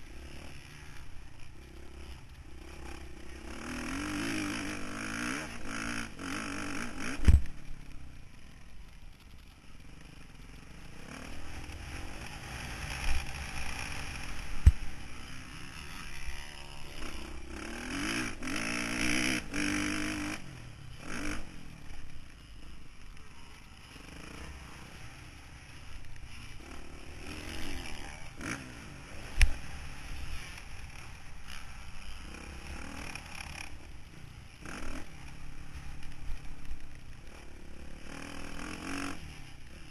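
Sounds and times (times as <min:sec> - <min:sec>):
motorcycle engine revving: 0:00.0 - 0:08.7, 0:09.3 - 0:39.9.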